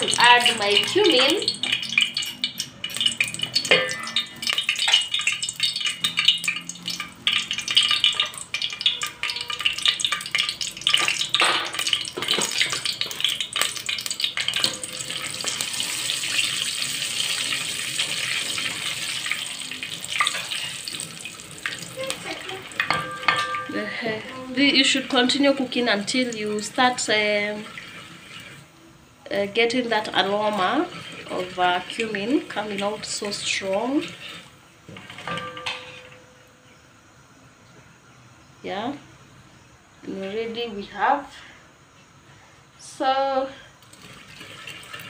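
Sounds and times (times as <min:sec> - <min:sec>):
oil sizzling in a pot: 0:00.0 - 0:41.4, 0:42.8 - 0:45.0
spoon scraping and knocking pot: 0:22.8 - 0:23.8, 0:30.2 - 0:36.4.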